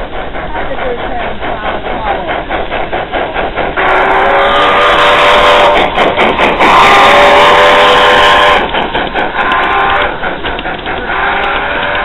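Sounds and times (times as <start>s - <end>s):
train horn blasts: 3.8s - 5.8s, 6.6s - 8.6s, 9.5s - 10.2s, 11.1s - 12.0s.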